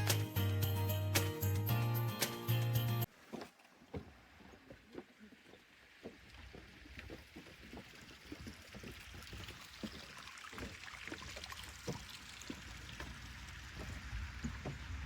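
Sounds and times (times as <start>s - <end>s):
footsteps: 3.3s - 15.0s.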